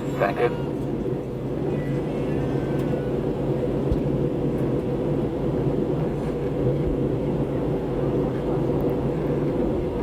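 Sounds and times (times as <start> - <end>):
airliner cabin engine drone: 0.0 - 10.0.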